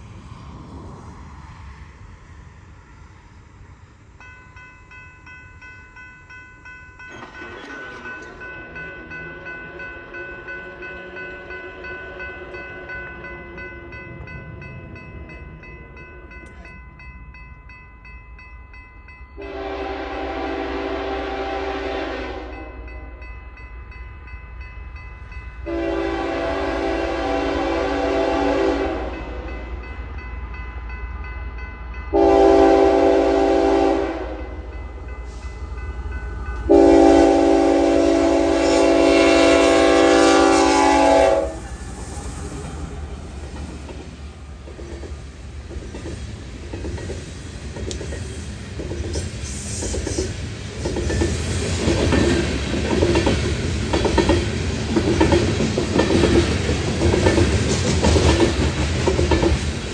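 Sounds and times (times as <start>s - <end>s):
train wheels clacking on rails: 4.2s - 17.2s, 25.2s - 59.9s
locomotive air horn: 19.4s - 22.9s, 25.6s - 29.4s, 32.1s - 34.6s, 36.6s - 41.8s
diesel locomotive rumble: 24.2s - 59.9s.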